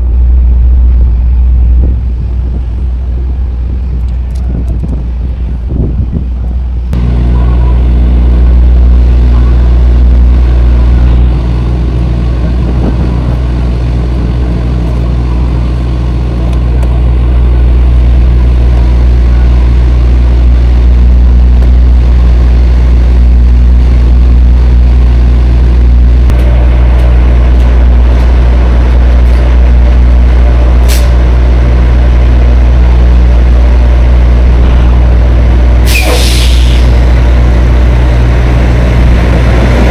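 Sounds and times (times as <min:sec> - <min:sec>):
truck diesel engine running: 0:00.0 - 0:39.9.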